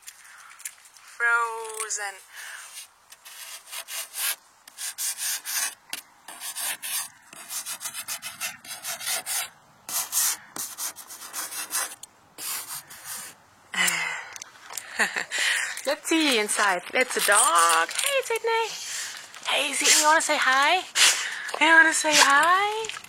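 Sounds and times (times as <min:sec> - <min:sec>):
rough scraping strokes: 0:02.5 - 0:13.4, 0:17.0 - 0:23.0.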